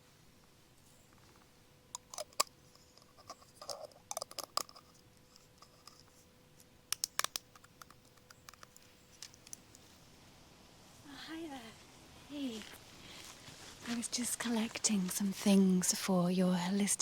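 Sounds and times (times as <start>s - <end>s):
leaves rustling: 8.8s - 16.0s.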